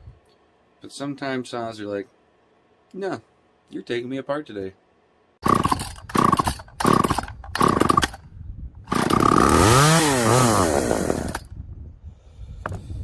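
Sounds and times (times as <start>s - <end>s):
two-stroke chainsaw sputtering: 5.4s - 8.2s, 8.9s - 11.5s.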